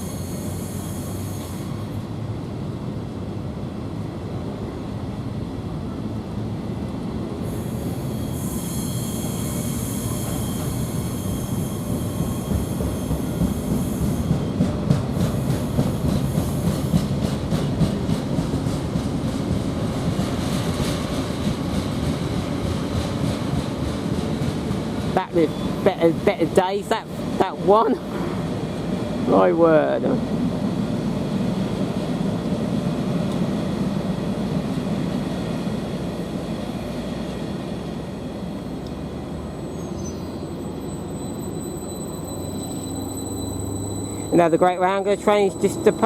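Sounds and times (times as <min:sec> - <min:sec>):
high-pitched hissing squeal: 0:00.0 - 0:02.0, 0:07.5 - 0:14.3, 0:39.7 - 0:46.0
freight train rumbling: 0:00.0 - 0:46.0.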